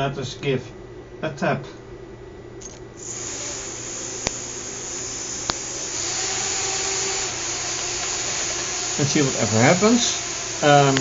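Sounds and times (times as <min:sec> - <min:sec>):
electric motor and propeller whirring: 0:02.6 - 0:11.0
sharp clicks: 0:02.6 - 0:11.0.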